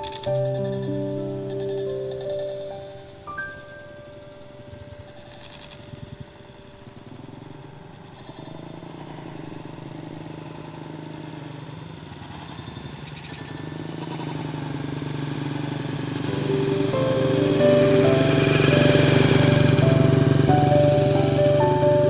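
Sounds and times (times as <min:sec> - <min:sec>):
music: 0:00.0 - 0:07.0, 0:16.2 - 0:22.0
small engine running: 0:04.8 - 0:22.0.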